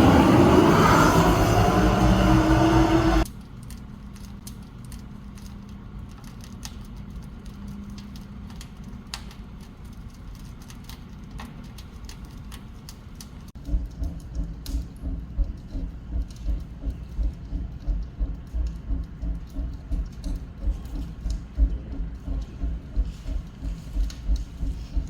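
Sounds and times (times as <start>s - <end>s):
pulsing low rumble: 0.0s - 3.3s
stove low hum: 0.0s - 3.3s
wood fire crackling: 0.0s - 25.0s.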